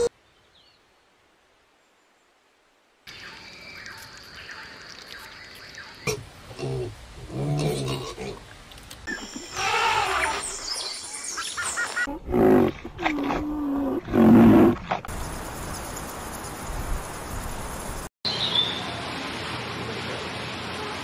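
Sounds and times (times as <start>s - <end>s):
bird chirp: 15.1s - 18.8s.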